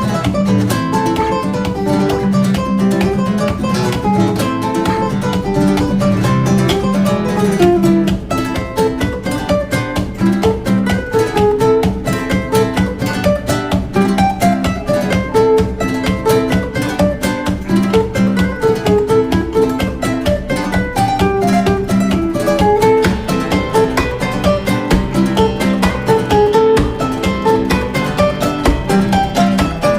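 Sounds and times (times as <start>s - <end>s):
fast plucked acoustic guitar: 0.0s - 29.9s.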